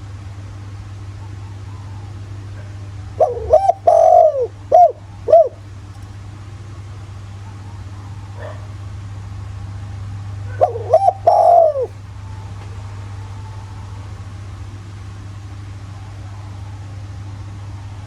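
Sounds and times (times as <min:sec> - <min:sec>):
dove cooing: 0:01.1 - 0:05.9, 0:07.2 - 0:08.8, 0:10.3 - 0:14.7.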